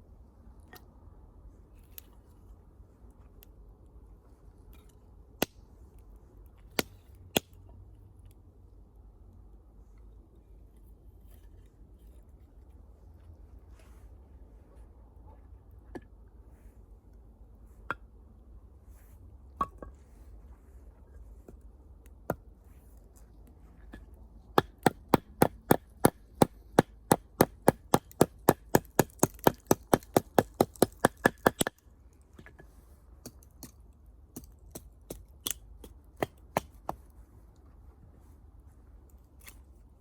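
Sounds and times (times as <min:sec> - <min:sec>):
axe chopping wood: 0:24.6 - 0:31.8, 0:34.3 - 0:37.0.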